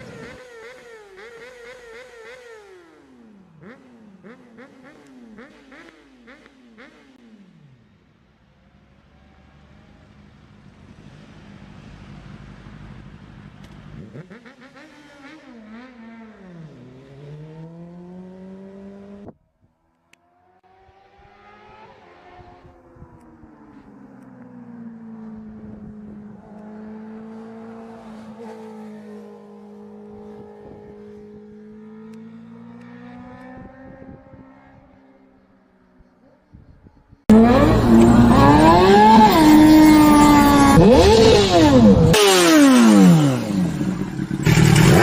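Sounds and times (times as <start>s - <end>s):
motorcycle engine revving: 0.0s - 8.0s, 11.8s - 19.4s, 24.6s - 35.2s, 37.3s - 45.0s.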